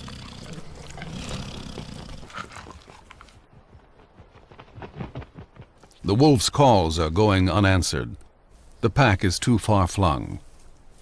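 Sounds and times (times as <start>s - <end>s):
low animal growling: 0.0s - 2.5s.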